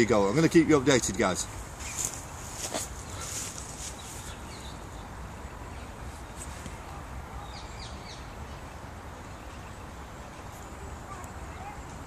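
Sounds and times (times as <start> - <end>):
high falling bird calls: 1.4 - 5.1.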